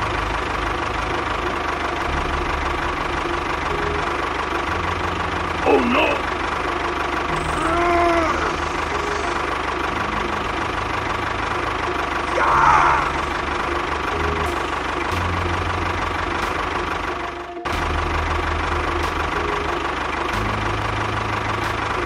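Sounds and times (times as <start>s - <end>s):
tractor engine chugging: 0.0s - 22.0s.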